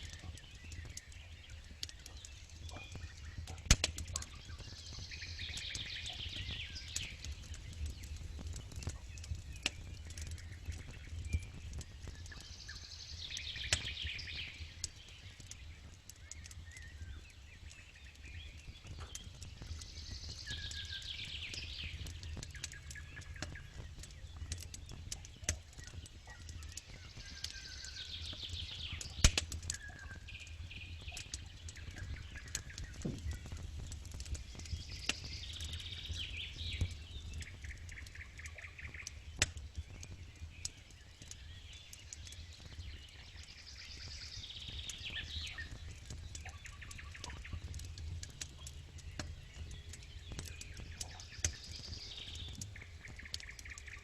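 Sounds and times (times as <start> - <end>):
campfire crackling and popping: 0.0 - 54.0
songbirds trilling: 0.0 - 54.0.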